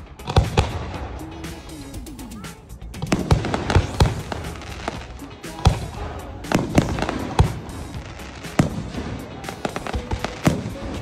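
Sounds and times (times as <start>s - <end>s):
fireworks bangs and crackles: 0.0s - 2.0s, 2.9s - 11.0s
loud firework reports: 0.0s - 11.0s.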